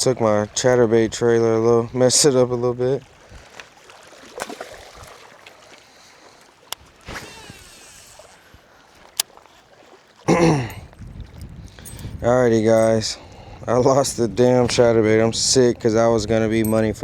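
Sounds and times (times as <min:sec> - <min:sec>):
faint wind: 0:00.0 - 0:17.0
water noise: 0:00.0 - 0:17.0
sharp clicks: 0:06.7 - 0:09.3.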